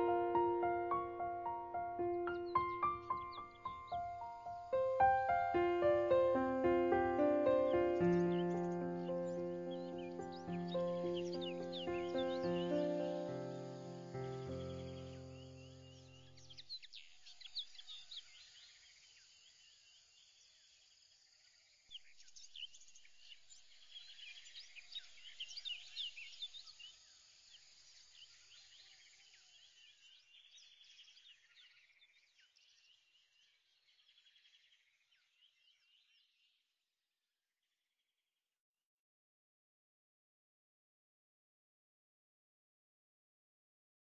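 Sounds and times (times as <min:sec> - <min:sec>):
bird chirps and trills: 0:00.0 - 0:18.7.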